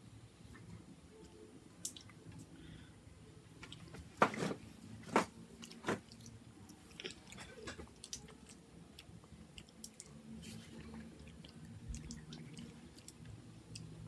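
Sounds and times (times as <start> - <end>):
children chewing: 5.6 - 14.0.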